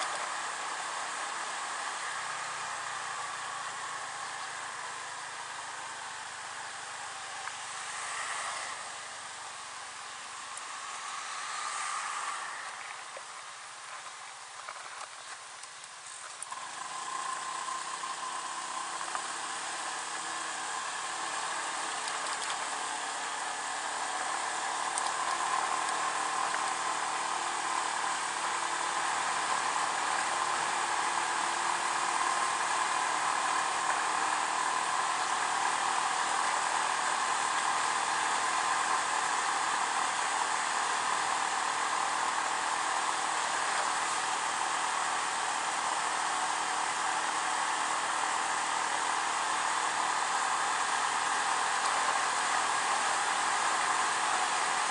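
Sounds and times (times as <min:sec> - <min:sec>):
wind and road noise: 0:00.0 - 0:54.9
scooter engine running: 0:16.0 - 0:54.9.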